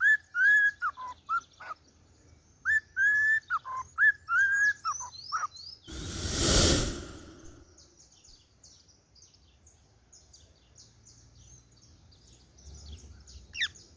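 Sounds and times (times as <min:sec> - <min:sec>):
loud rushing hiss: 0:05.9 - 0:07.6.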